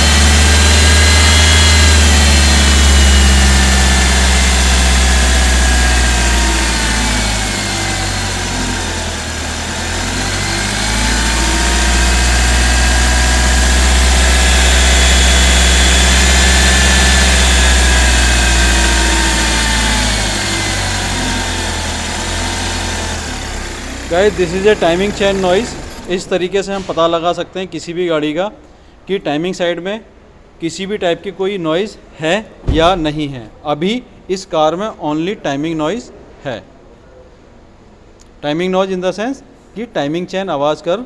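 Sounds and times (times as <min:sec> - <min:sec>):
car engine running: 0:00.0 - 0:26.5, 0:32.7 - 0:33.5.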